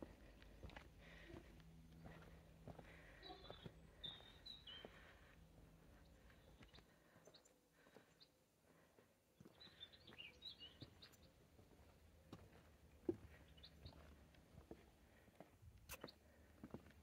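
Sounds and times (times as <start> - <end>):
faint bird chirps: 2.1 - 5.3.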